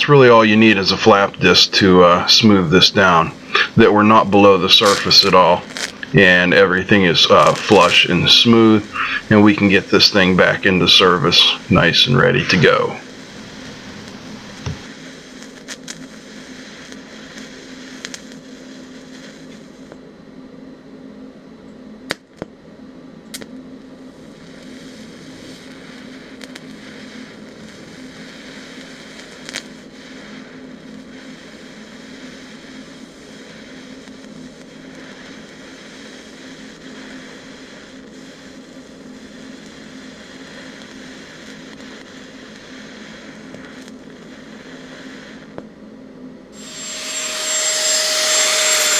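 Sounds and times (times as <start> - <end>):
welding arc buzzing: 0.7 - 19.8, 24.4 - 35.8, 46.6 - 48.9
welding arc pops: 1.0 - 16.2, 16.8 - 18.4, 22.1 - 22.5, 23.3 - 23.5, 25.5 - 31.1, 39.4 - 45.7.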